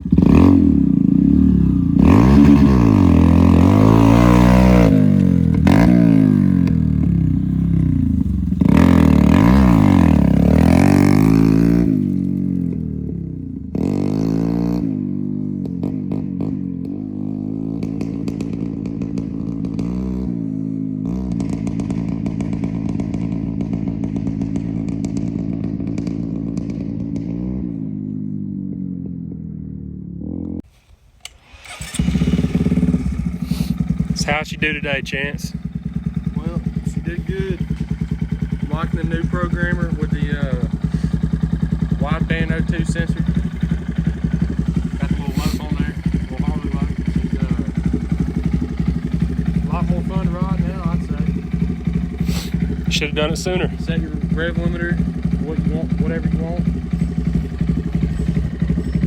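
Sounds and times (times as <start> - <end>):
motorcycle engine revving: 0.0 - 30.7, 31.4 - 59.0.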